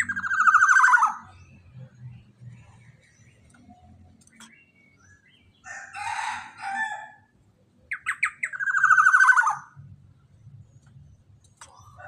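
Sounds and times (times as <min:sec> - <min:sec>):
harsh scratchy bird calls: 0:00.0 - 0:01.9, 0:07.9 - 0:09.9.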